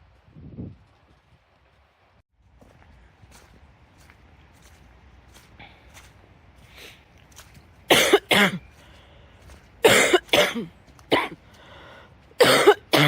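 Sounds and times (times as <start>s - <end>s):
person coughing hard: 7.9s - 8.6s, 9.8s - 11.4s, 12.4s - 13.0s.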